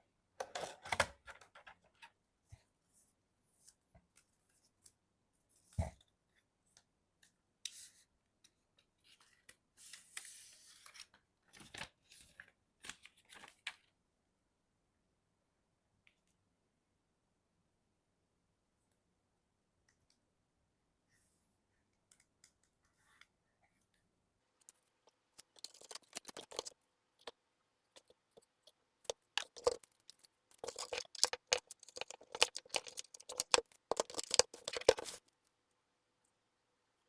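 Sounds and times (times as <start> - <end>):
hands rustling packaging: 24.6 - 27.4, 28.0 - 35.3.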